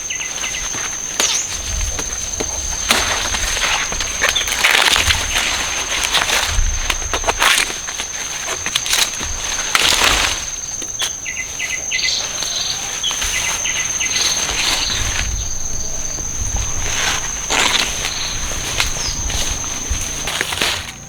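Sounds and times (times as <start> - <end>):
high-pitched insect drone: 0.0 - 21.0
plant material rustling: 0.0 - 21.0.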